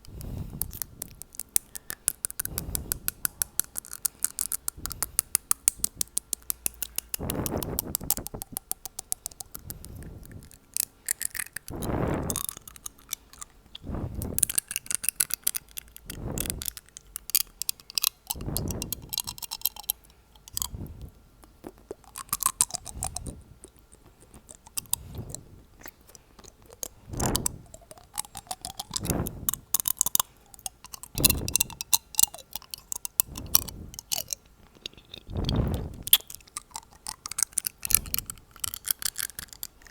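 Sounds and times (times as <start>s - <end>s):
teeth tapping clicks: 0.0s - 11.7s, 14.4s - 20.7s, 21.4s - 25.0s, 25.8s - 35.2s, 36.0s - 39.9s
breathy whooshes on microphone: 11.7s - 12.4s, 13.8s - 14.4s, 16.1s - 16.6s, 18.4s - 19.1s, 33.3s - 34.0s, 35.3s - 36.1s.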